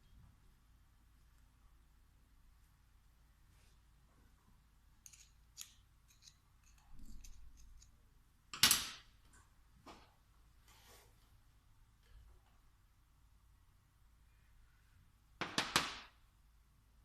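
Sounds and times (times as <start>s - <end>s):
metal tools clicking and tapping: 5.0s - 8.0s.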